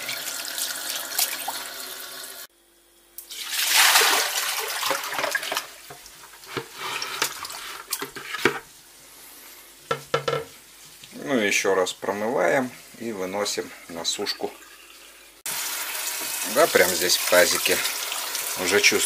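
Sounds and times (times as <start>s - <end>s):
water splashing into sink: 0.0s - 2.3s, 3.2s - 7.9s
tap water running into basin: 0.0s - 2.5s, 3.2s - 8.1s, 14.3s - 19.0s
fish and basin knocking sink: 9.9s - 10.5s.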